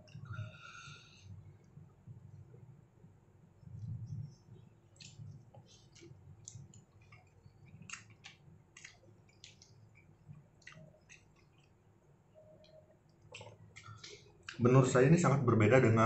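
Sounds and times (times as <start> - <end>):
mouth clicks and lip smacks: 3.8 - 11.8, 12.4 - 14.6
wet chewing: 4.9 - 14.6.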